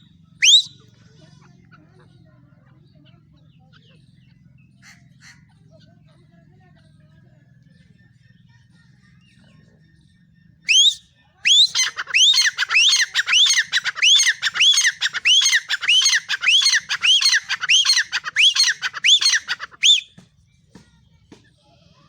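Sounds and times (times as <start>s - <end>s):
francolin calling: 0.4s - 0.8s, 10.7s - 20.1s.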